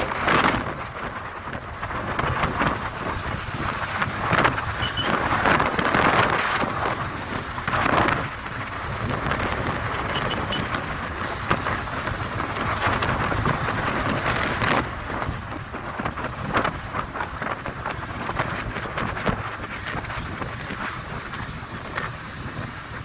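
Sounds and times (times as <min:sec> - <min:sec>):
motorcycle rumble: 0:00.0 - 0:23.0
wind on microphone: 0:00.0 - 0:23.0.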